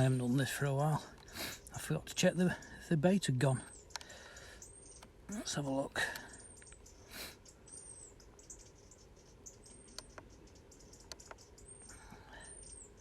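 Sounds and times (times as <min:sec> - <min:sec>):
faint high chirps: 0:03.6 - 0:13.0.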